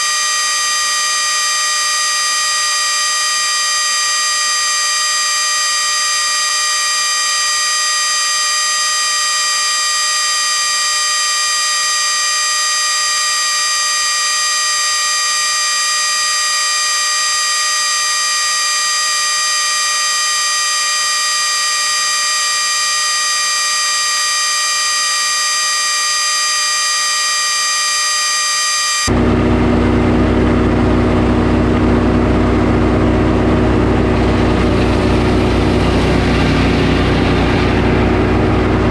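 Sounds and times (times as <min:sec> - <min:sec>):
sawmill high-pitched whine: 0:00.0 - 0:38.9
lower engine running: 0:29.1 - 0:38.9.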